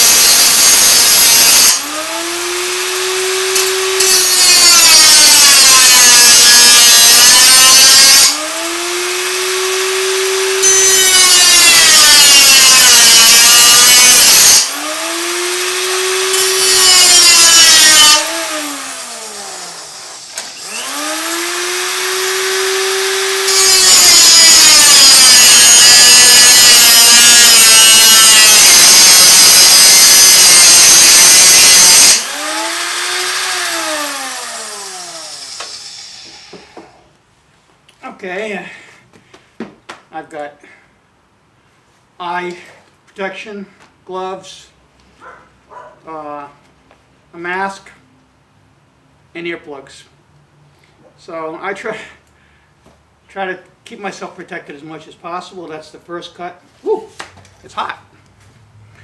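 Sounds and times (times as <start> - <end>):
abrasive wheel cutting sheet steel: 0.0 - 36.8.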